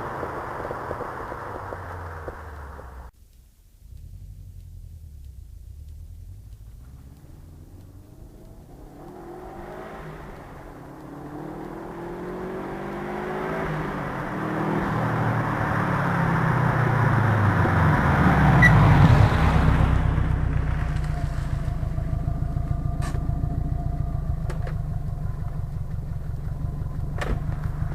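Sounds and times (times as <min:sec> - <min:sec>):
car engine accelerating: 0:00.0 - 0:27.9
sharp clicks: 0:00.2 - 0:12.9.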